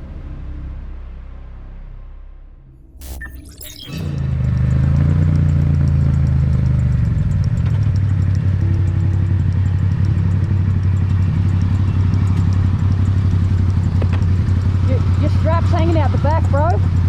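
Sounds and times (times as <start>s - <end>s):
motorcycle engine running: 4.1s - 17.0s.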